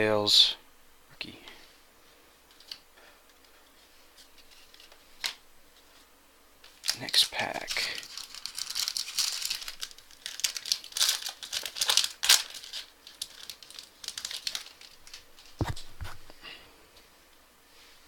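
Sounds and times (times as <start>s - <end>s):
foil pack crinkling: 6.6s - 15.9s.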